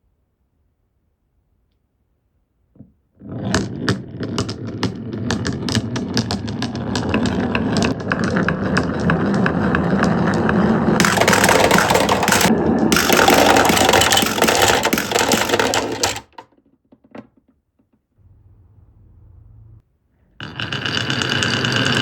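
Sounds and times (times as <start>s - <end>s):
marbles rolling rumble: 3.2s - 16.5s, 20.4s - 22.0s
marbles clacking on wooden track: 3.2s - 18.0s, 20.4s - 22.0s.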